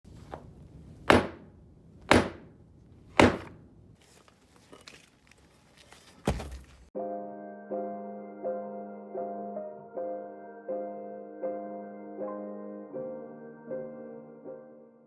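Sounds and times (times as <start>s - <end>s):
hammer striking concrete: 1.0s - 3.6s.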